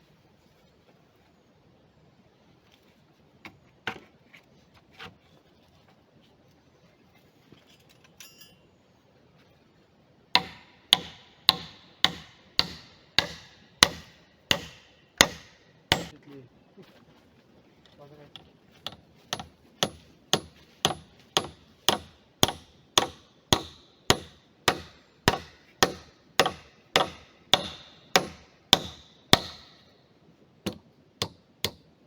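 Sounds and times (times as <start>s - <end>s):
hammer strikes ringing: 10.4s - 16.1s.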